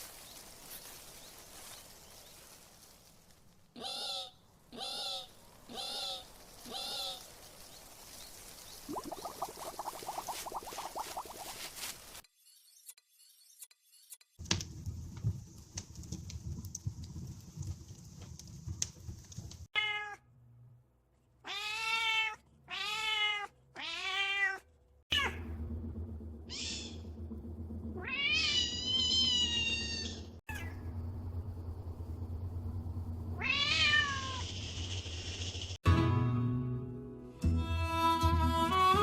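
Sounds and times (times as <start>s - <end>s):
cats meowing: 21.5s - 25.4s.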